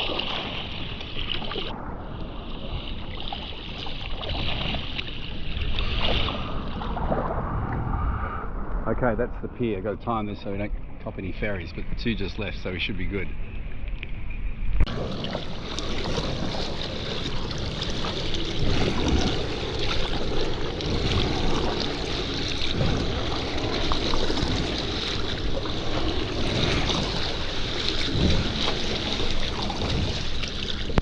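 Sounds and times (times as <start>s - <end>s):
water splashing around kayak: 0.0s - 8.1s, 14.8s - 31.0s
wind buffeting microphone: 1.5s - 31.0s.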